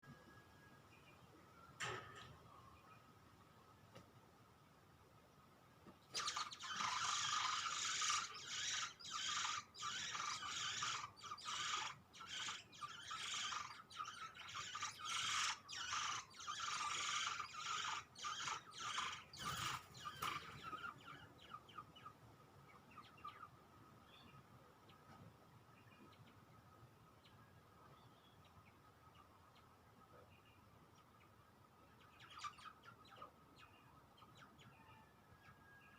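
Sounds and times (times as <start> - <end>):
faint steady high tone: 0.0 - 3.0
faint bird chirps: 6.0 - 35.9
nestlings begging calls: 6.1 - 23.5, 32.0 - 34.5.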